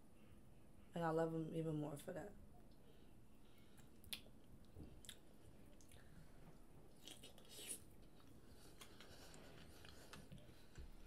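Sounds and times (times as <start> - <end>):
faint chewing: 3.6 - 11.0.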